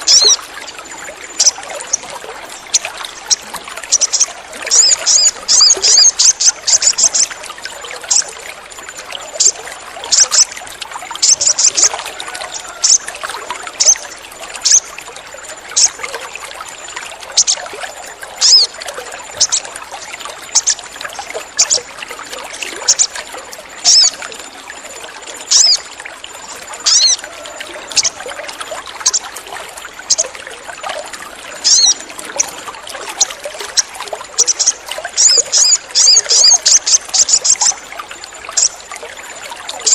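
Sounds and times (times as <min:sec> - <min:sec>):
bird chirping: 0:00.0 - 0:00.4, 0:02.7 - 0:07.3, 0:11.2 - 0:11.9, 0:13.8 - 0:14.0, 0:14.6 - 0:14.9, 0:18.4 - 0:18.7, 0:20.5 - 0:20.8, 0:23.8 - 0:24.2, 0:25.5 - 0:25.8, 0:31.6 - 0:32.5, 0:33.8 - 0:37.8
trickling water: 0:00.0 - 0:39.9.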